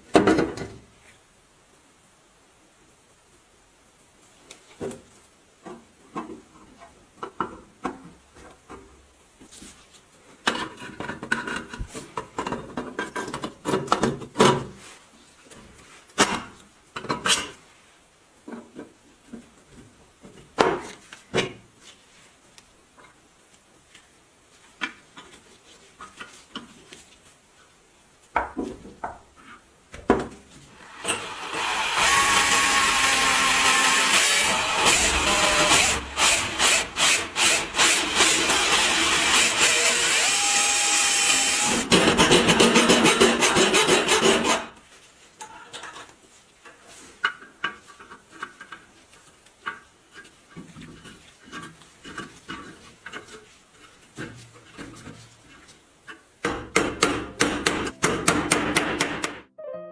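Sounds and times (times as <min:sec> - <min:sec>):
sawing-like rasp: 0:31.0 - 0:44.8
hard parts knocking and clattering: 0:56.4 - 0:59.4.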